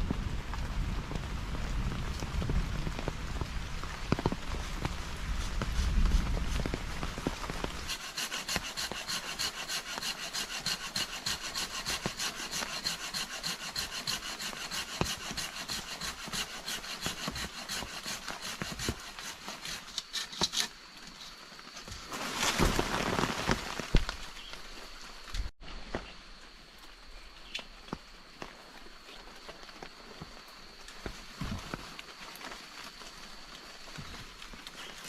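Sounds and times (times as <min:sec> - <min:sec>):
hand saw cutting wood: 0:07.9 - 0:20.8.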